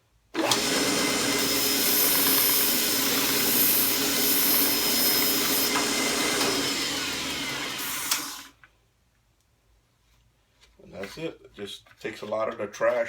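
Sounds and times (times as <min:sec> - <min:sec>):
belt sander running with hiss: 0:00.4 - 0:08.5.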